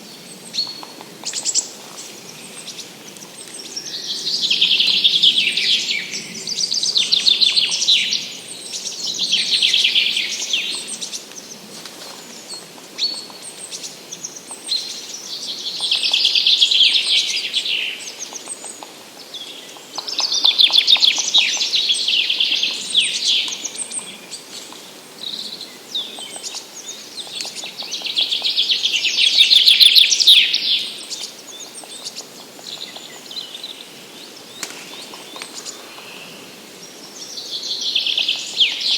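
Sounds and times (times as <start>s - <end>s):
songbird trilling: 26.0s - 32.1s.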